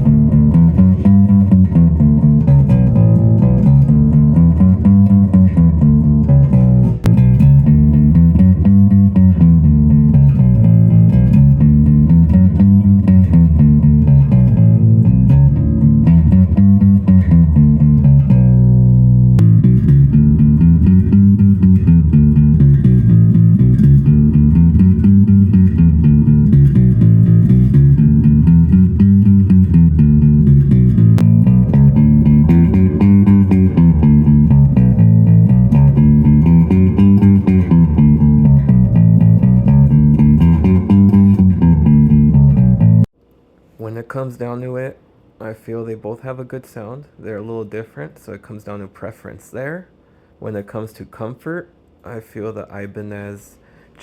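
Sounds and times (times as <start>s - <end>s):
electric bass guitar: 0.0s - 43.1s.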